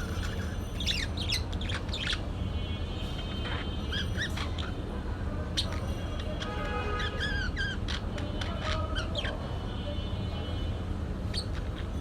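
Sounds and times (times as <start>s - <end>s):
parakeet chirping: 0.0s - 2.5s, 3.2s - 4.9s, 5.5s - 9.5s, 11.3s - 12.0s.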